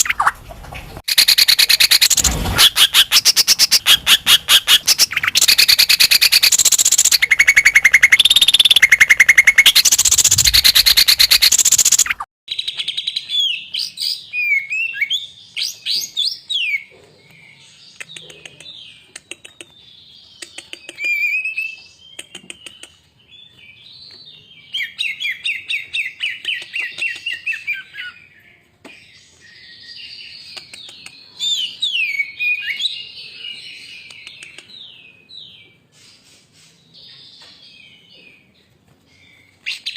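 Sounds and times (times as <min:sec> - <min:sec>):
bird whistling and trilling: 0:01.1 - 0:12.2.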